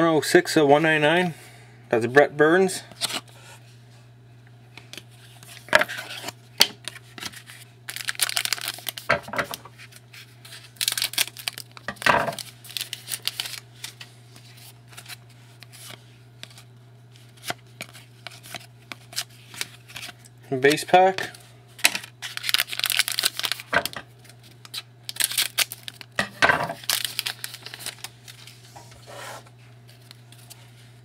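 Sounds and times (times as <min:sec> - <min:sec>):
steady low hum: 0:00.0 - 0:31.0
cards clicking and rustling: 0:04.8 - 0:09.9, 0:10.5 - 0:20.4, 0:21.1 - 0:24.0, 0:24.6 - 0:28.6
card wrappers tearing and crinkling: 0:04.9 - 0:28.7, 0:29.9 - 0:30.8.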